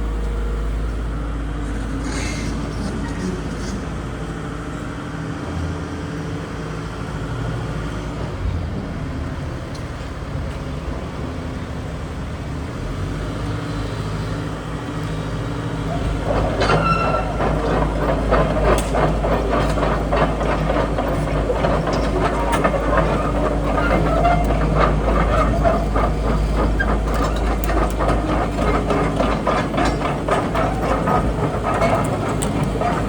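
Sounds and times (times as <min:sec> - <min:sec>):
diesel engine running: 0:00.0 - 0:33.0
metal clanking and squealing: 0:15.8 - 0:33.0.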